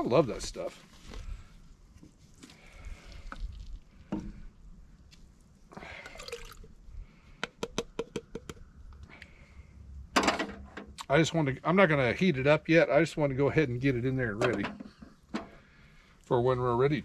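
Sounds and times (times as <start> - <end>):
food pouring into a pot: 6.0 - 6.7.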